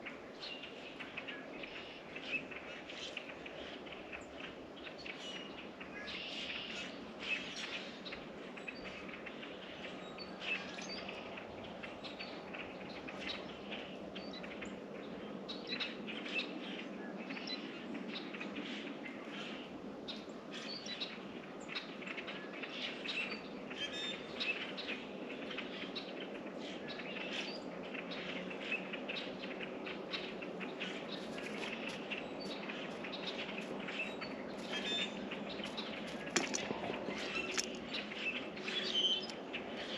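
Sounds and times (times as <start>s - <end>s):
songbirds chirping: 0.0s - 39.9s
steady low background hum: 0.0s - 39.9s
small ticks and flutters: 35.6s - 38.2s.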